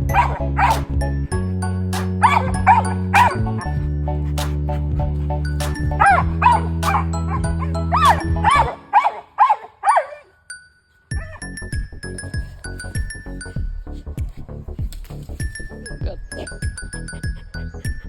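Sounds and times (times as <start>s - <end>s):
dog barking: 0.0s - 0.8s, 2.2s - 3.7s, 5.8s - 10.3s
background music with low bass: 0.0s - 9.1s, 11.1s - 18.0s.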